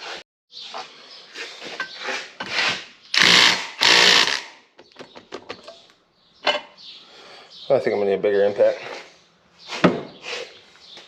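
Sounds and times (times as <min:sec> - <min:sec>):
impact wrench hammering: 0:03.2 - 0:04.5.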